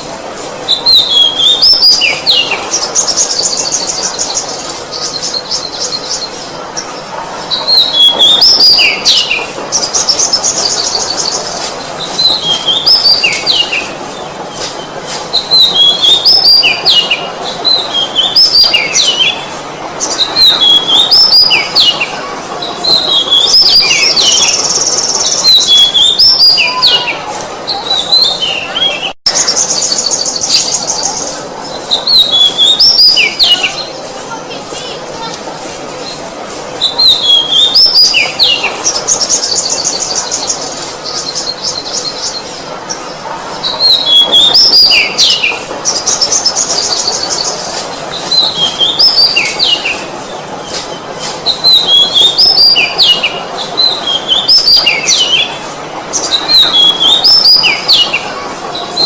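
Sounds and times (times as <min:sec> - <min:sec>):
bird singing whistles and trills: 0:00.7 - 0:06.4, 0:15.3 - 0:19.4, 0:20.0 - 0:22.1, 0:36.8 - 0:42.4, 0:51.2 - 0:55.6, 0:56.2 - 0:58.3.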